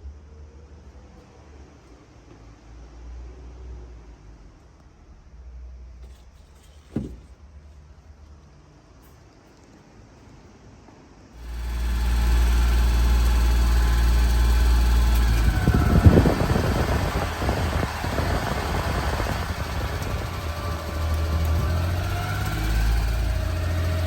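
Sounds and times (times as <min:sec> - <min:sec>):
small truck engine idling: 0:11.4 - 0:24.0.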